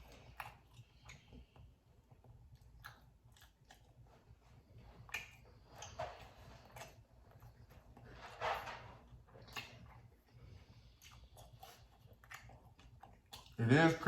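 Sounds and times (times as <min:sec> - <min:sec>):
chewing crispy taco: 0:00.0 - 0:14.0.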